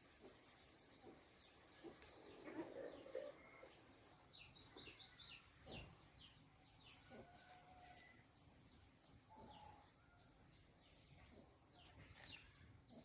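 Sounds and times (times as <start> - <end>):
small bird chirping: 4.1 - 5.9.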